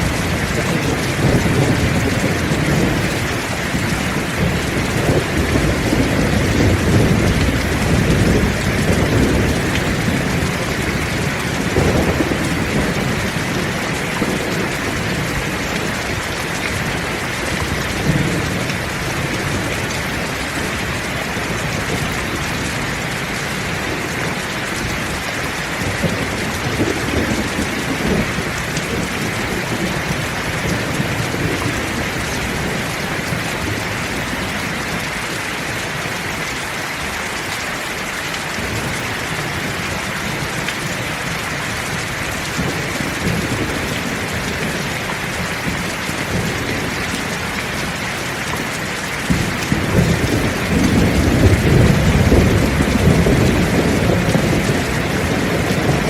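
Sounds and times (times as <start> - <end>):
thunder rumbling: 0.0 - 35.1, 38.4 - 56.0
heavy rain pouring: 0.0 - 56.0.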